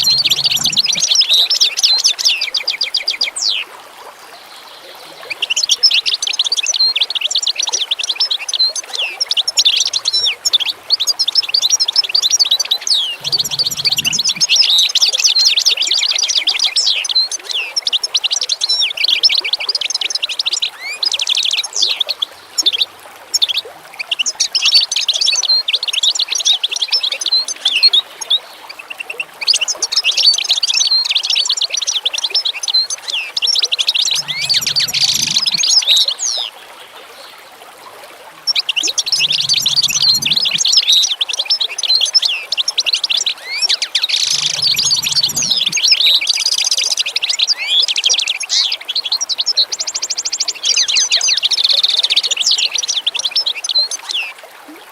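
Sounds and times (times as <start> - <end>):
small birds chirping and trilling: 0.0 - 1.9, 8.4 - 17.8, 29.8 - 36.5, 38.5 - 54.3.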